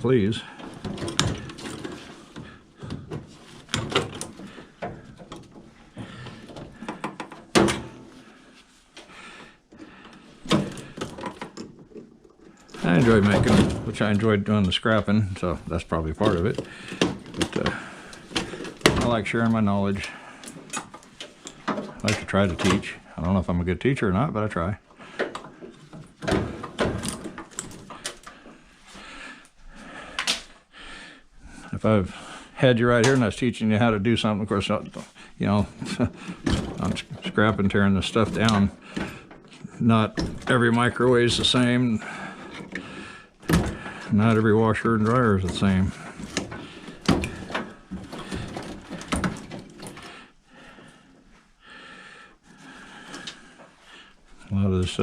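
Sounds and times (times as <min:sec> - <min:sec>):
metal parts clattering: 0:00.4 - 0:02.5
metal parts clunking: 0:00.4 - 0:08.2, 0:25.1 - 0:28.4, 0:35.7 - 0:50.1.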